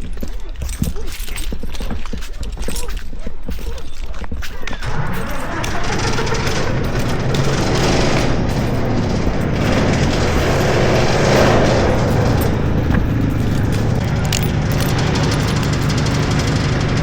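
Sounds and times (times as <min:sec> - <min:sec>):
engine running: 0:04.8 - 0:17.0.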